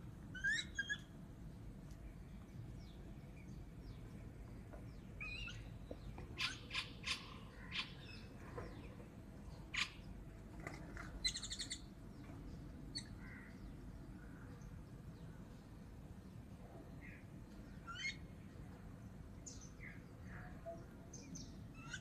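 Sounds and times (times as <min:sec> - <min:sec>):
birds sharp call notes: 0:05.2 - 0:08.9.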